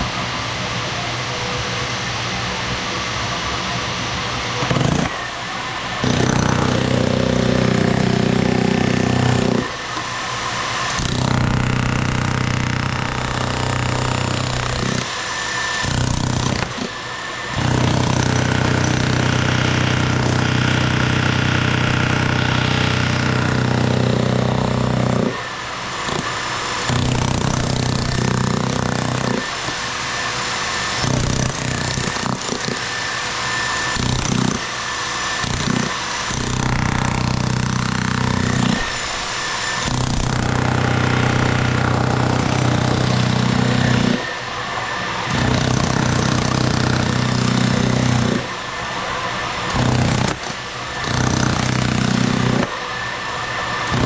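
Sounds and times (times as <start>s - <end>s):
jackhammer breaking concrete: 4.6s - 5.2s, 6.0s - 9.8s, 10.9s - 29.6s, 30.9s - 33.0s, 33.7s - 39.0s, 39.7s - 44.4s, 45.3s - 48.5s, 49.6s - 52.8s.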